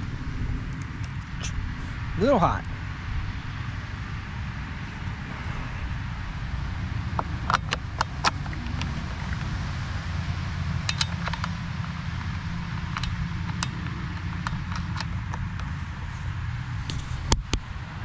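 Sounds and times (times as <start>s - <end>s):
low rumble: 0.0s - 17.5s
metallic clicks of chainsaw handling: 10.9s - 11.6s.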